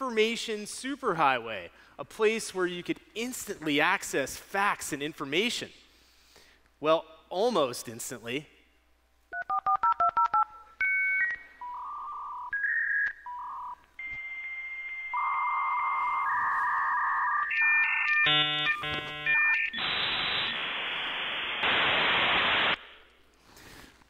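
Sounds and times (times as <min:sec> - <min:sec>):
dial-up modem tones and hiss: 0:15.2 - 0:22.8.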